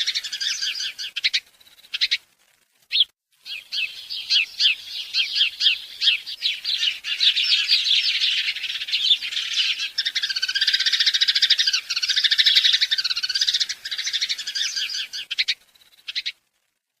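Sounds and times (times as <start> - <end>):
small birds chirping: 0.0 - 2.3, 2.9 - 16.8.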